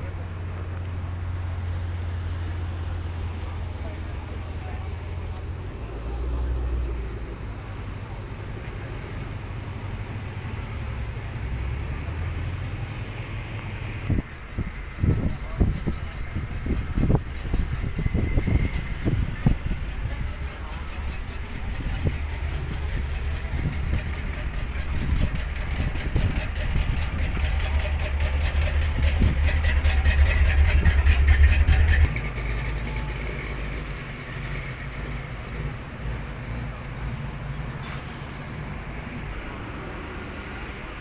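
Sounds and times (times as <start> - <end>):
car engine running: 0.0 - 41.0.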